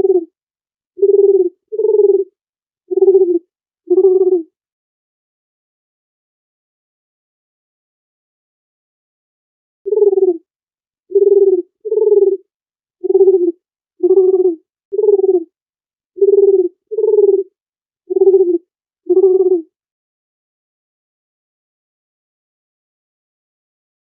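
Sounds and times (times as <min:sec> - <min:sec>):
dove cooing: 0:00.0 - 0:00.3, 0:01.0 - 0:02.3, 0:02.9 - 0:04.5, 0:09.9 - 0:10.4, 0:11.1 - 0:12.4, 0:13.0 - 0:15.5, 0:16.2 - 0:17.5, 0:18.1 - 0:19.7.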